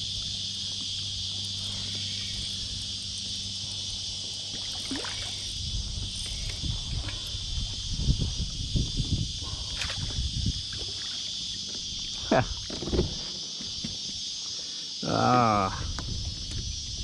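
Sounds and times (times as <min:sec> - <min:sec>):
cicadas buzzing: 0:00.0 - 0:17.0
low knocks and thumps: 0:12.6 - 0:14.2.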